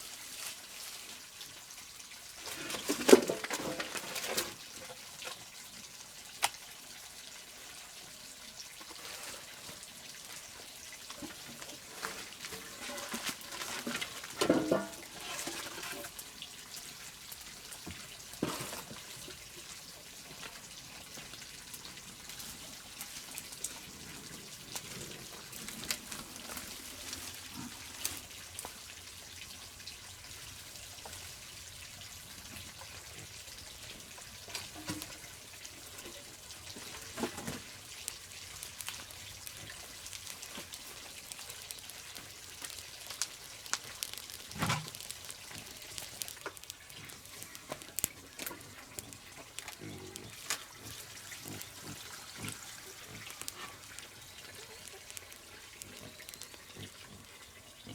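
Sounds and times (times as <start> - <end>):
water trickling: 0.1 - 57.9.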